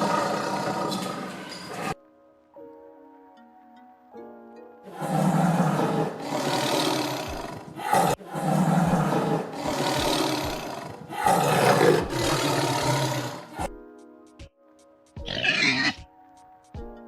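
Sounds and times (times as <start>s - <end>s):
big cat roaring: 0.0s - 2.0s, 4.9s - 13.7s, 15.3s - 16.0s.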